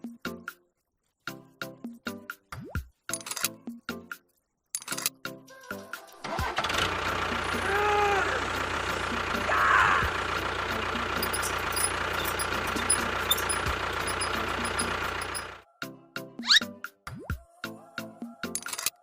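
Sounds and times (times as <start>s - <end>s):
tractor engine idling: 6.3s - 15.6s.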